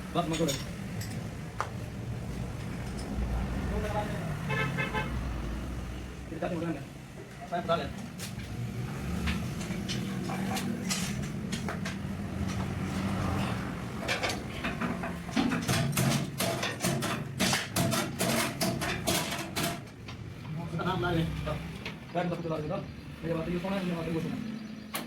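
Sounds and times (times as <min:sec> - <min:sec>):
metal tools clinking and knocking: 0:00.2 - 0:01.3, 0:09.6 - 0:12.7.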